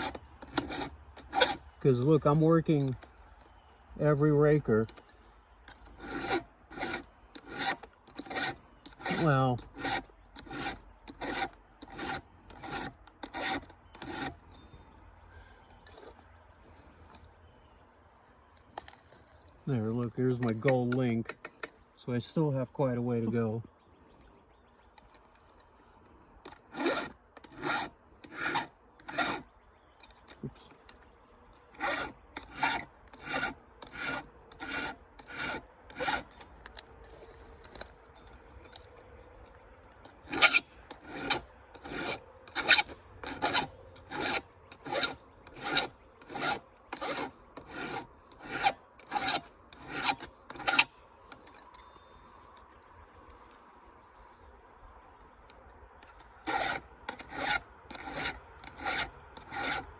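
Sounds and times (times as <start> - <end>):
hand file rasping on chain: 0.0 - 3.0, 5.7 - 14.4, 26.5 - 29.5, 31.7 - 38.8, 40.0 - 51.6, 56.0 - 59.9
high insect trill: 0.0 - 59.9.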